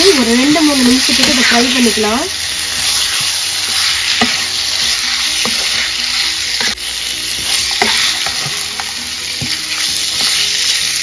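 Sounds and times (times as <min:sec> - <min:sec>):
chicken sizzling in oil: 0:00.0 - 0:11.0
wooden spatula scraping pan: 0:00.8 - 0:02.1.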